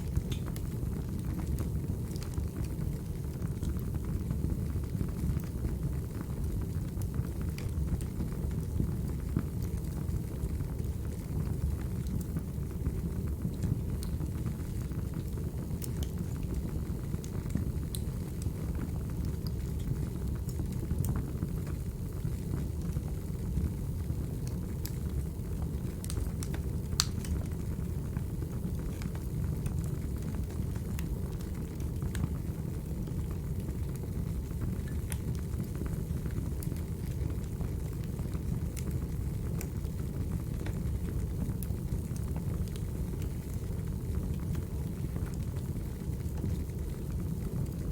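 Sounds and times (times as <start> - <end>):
fire crackles and pops: 0.0 - 47.9
wood fire rumble: 0.0 - 47.9.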